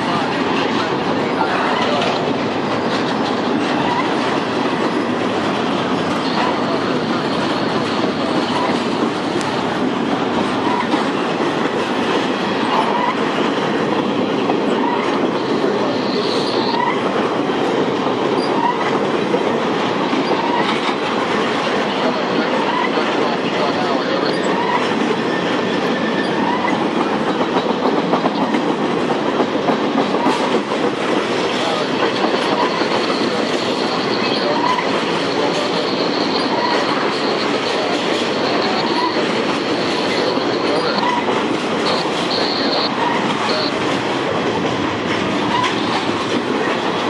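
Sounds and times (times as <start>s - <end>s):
train wheels rumbling on rails: 0.0s - 47.0s
faint high wheel squeals: 32.5s - 43.7s.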